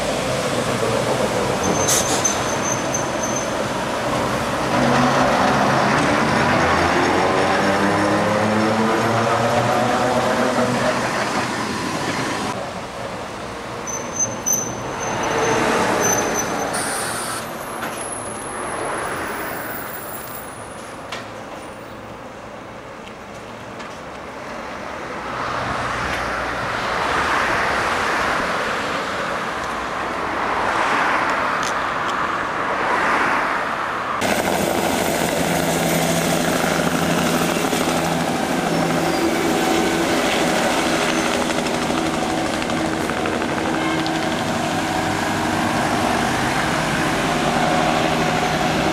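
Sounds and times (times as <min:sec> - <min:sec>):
train running past on rails: 0:00.0 - 0:21.7, 0:34.1 - 0:48.9
standing train humming: 0:34.2 - 0:48.9.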